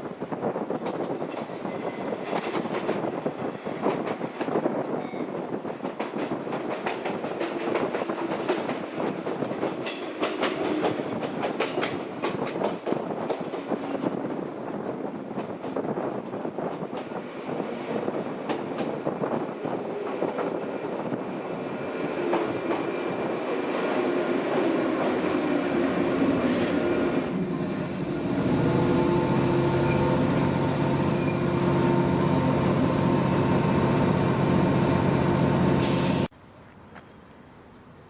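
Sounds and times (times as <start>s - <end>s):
electric train running on rails: 0.0s - 36.3s
high-pitched wheel squeals: 26.6s - 28.4s, 29.8s - 31.8s, 33.2s - 34.7s.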